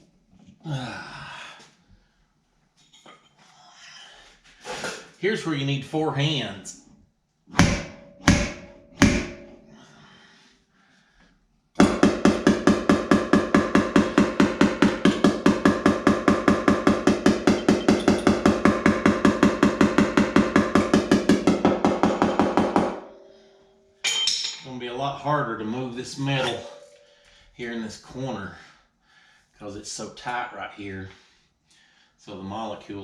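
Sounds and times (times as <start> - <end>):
hammer ringing on sheet metal: 7.6 - 9.7, 11.8 - 24.8.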